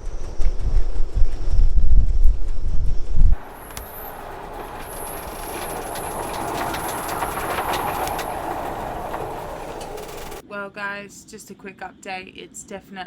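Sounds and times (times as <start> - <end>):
gale-force wind gusting: 0.0 - 10.4
rapid sharp rattling clicks: 3.4 - 10.4.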